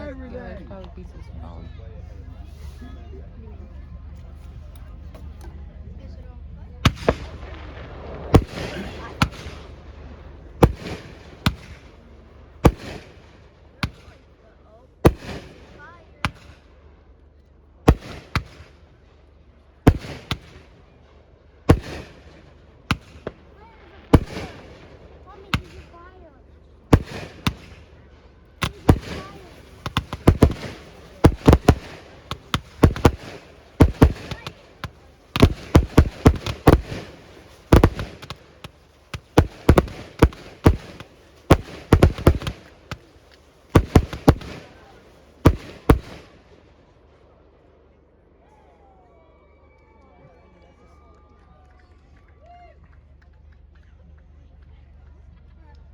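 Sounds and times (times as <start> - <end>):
fireworks bangs: 6.8 - 14.3, 15.0 - 16.8, 17.9 - 19.0, 19.8 - 21.0, 21.7 - 46.6.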